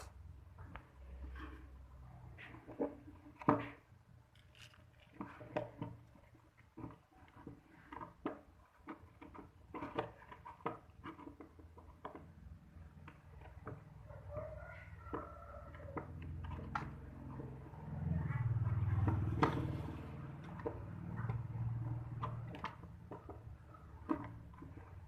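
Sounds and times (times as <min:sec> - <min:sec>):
small tools clicking and knocking: 0:02.7 - 0:14.1.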